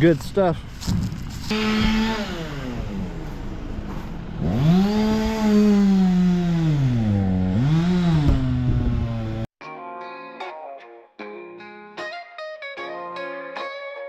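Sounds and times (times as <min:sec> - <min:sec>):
chainsaw revving: 0:01.4 - 0:09.5.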